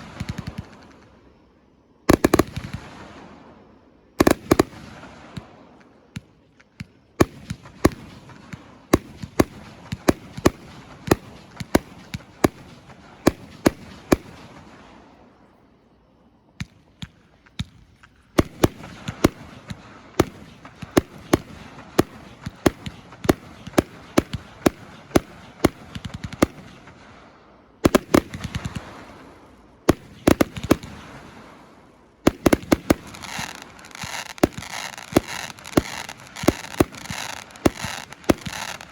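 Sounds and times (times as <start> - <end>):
firework cake firing bangs: 18.4 - 38.9.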